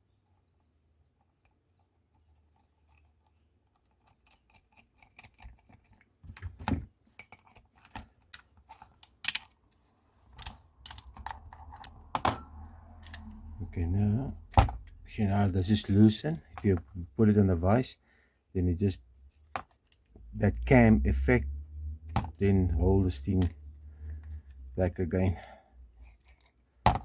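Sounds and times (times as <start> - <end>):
metal clicks and clinks: 2.6 - 9.6, 10.3 - 13.6, 14.4 - 15.6.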